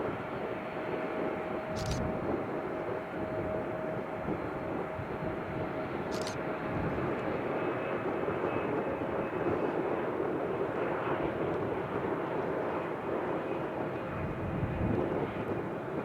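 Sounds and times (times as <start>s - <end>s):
jet engines rushing: 0.0s - 16.0s
faint engine whine: 0.1s - 11.8s.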